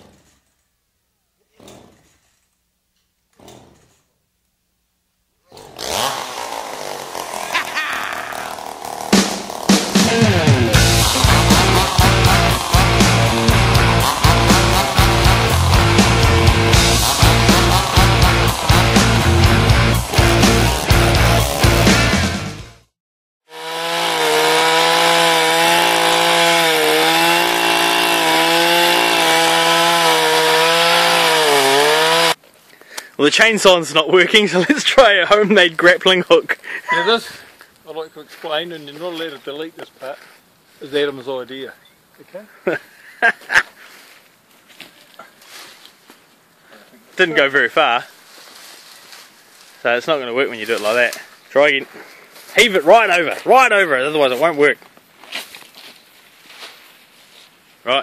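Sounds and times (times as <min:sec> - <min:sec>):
chainsaw starter cord pulls: 0:01.5 - 0:02.6, 0:03.3 - 0:04.1, 0:05.5 - 0:10.0, 0:10.8 - 0:21.6, 0:23.6 - 0:32.4
chainsaw running and revving: 0:05.5 - 0:22.5, 0:23.5 - 0:32.4.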